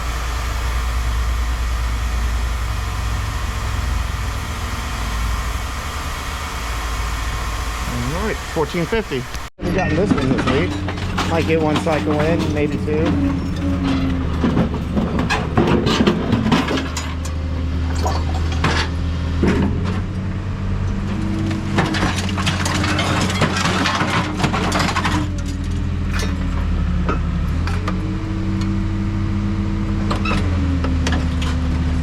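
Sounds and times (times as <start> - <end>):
hydraulic power unit hum: 0.0 - 32.0
scrap metal clanking: 9.8 - 20.0, 21.0 - 28.0.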